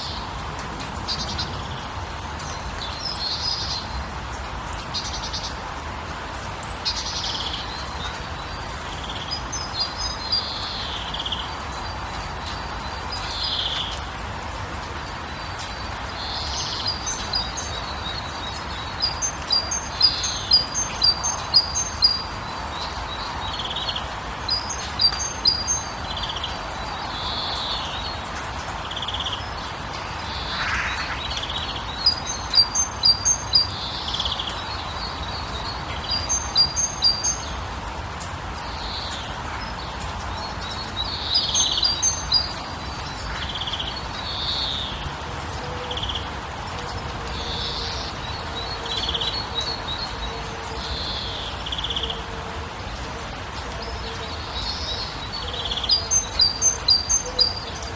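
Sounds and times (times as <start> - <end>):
background hiss: 15.2 - 44.9
birds single calls: 29.0 - 34.6.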